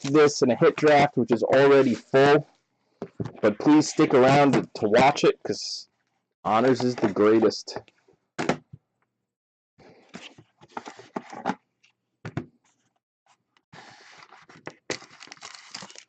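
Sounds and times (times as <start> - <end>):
plastic wrap crinkling: 14.9 - 16.0.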